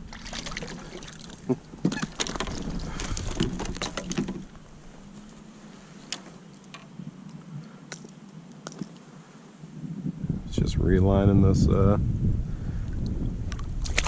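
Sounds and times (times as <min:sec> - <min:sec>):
fishing gear clicks and knocks: 0:01.8 - 0:05.4.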